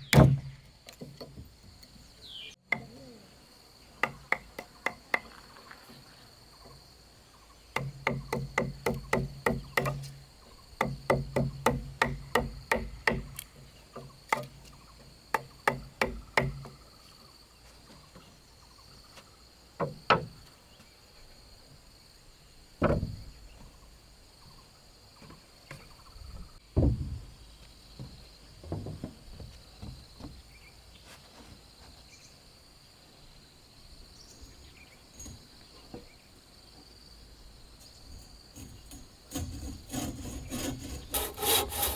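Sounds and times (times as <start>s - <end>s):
crickets chirring: 0.0s - 41.9s
heavy knocks: 26.7s - 27.4s.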